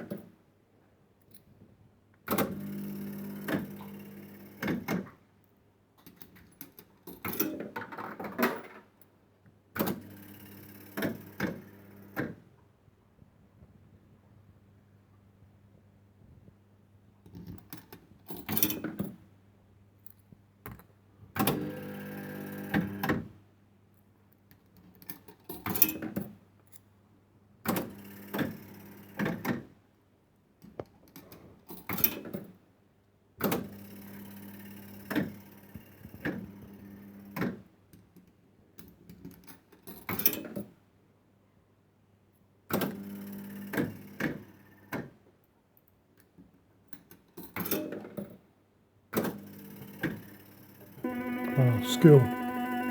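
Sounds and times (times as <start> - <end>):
fruit machine reels whirring: 51.0 - 52.9.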